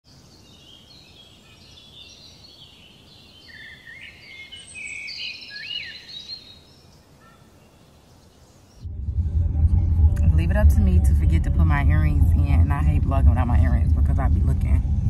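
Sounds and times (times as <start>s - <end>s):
birds chirping and whistling: 0.3s - 8.9s.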